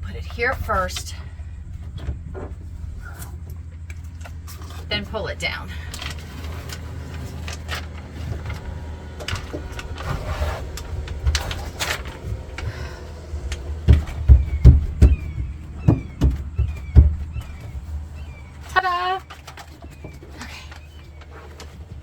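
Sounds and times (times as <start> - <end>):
dull thumps: 0.0 - 22.0
handling clicks and rustles: 0.0 - 22.0
steady low hum: 0.0 - 22.0
falling bird chirps: 12.8 - 22.0.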